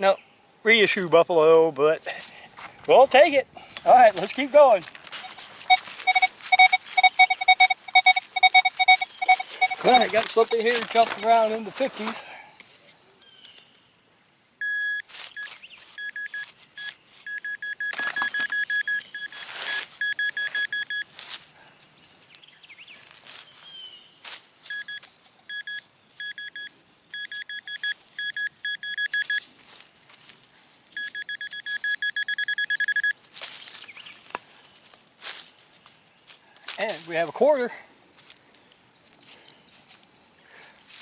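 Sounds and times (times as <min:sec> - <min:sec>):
digging scrapes in soil: 0:03.6 - 0:07.0, 0:19.2 - 0:20.0
metal detector beeping: 0:05.1 - 0:11.6, 0:14.6 - 0:21.1, 0:24.7 - 0:29.5, 0:30.9 - 0:33.2.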